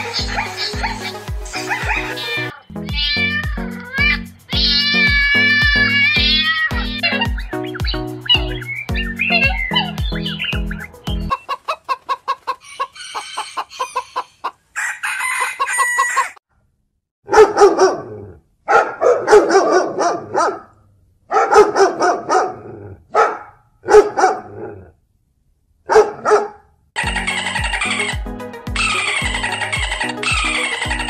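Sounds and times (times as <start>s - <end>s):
chicken clucking: 9.2s - 16.4s, 27.0s - 28.2s, 28.8s - 31.0s
dog barking: 17.3s - 24.8s, 25.9s - 26.7s.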